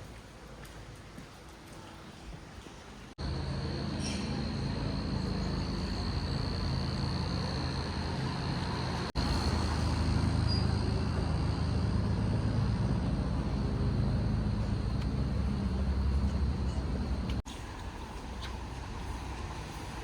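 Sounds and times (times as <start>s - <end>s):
vehicle engine rumble: 3.1s - 20.0s
faint high whine: 3.2s - 17.4s.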